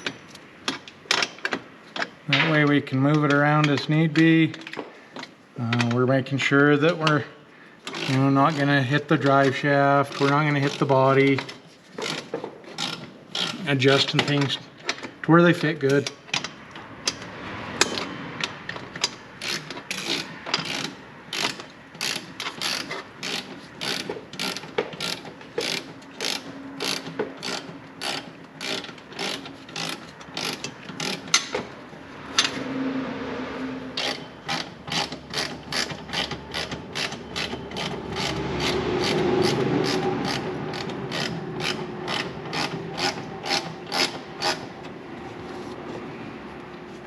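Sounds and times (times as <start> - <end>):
ratchet wrench clicking: 7.8 - 8.6, 10.1 - 13.7, 16.0 - 31.6, 34.0 - 44.7.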